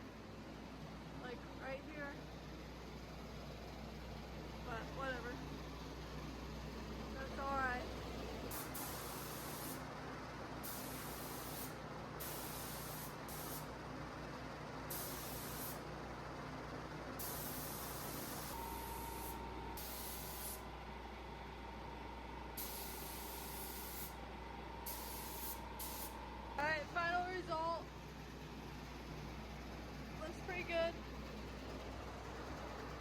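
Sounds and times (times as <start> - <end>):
spray gun hissing: 8.5 - 9.8, 10.6 - 13.7, 14.9 - 15.8, 17.2 - 20.6, 22.6 - 24.2, 24.8 - 26.2.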